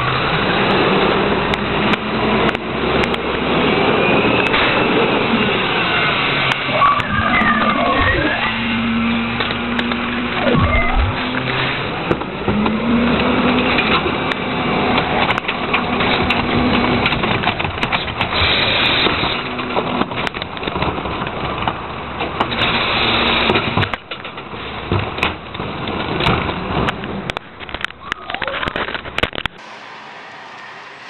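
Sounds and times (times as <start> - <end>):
garbage truck engine revving: 0.0 - 23.8, 29.6 - 31.0
trash crunching and cracking: 9.4 - 29.6.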